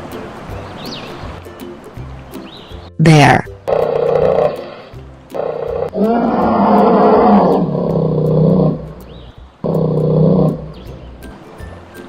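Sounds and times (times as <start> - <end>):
bear roaring: 3.7 - 11.0.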